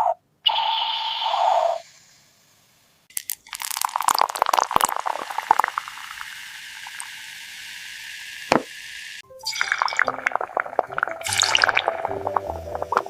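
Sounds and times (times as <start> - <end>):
water pouring into container: 3.1 - 7.3, 9.4 - 13.0.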